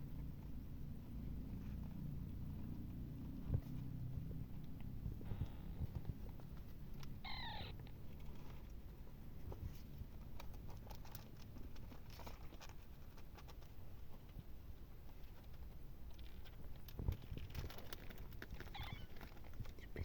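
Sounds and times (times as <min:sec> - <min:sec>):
faint clicks and rustles: 0:00.0 - 0:20.0
low background hum: 0:00.0 - 0:20.0
kitten mewing: 0:07.1 - 0:07.9, 0:18.6 - 0:19.3.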